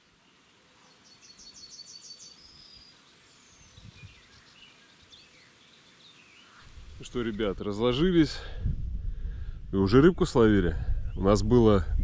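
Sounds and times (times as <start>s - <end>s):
small birds chirping: 0.0s - 8.0s.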